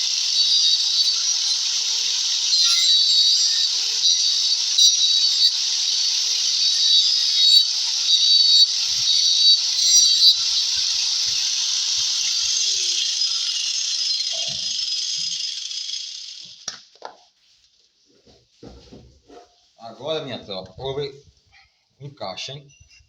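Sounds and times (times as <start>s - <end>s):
power tool cutting wood: 0.0s - 16.7s.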